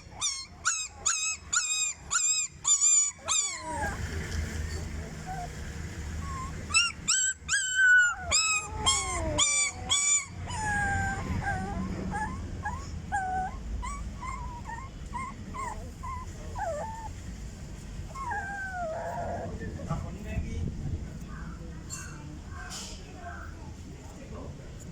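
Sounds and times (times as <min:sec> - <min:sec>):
dog yelping loudly: 0:00.0 - 0:04.0, 0:06.2 - 0:17.1
dog whining softly: 0:00.0 - 0:17.2, 0:18.1 - 0:20.2.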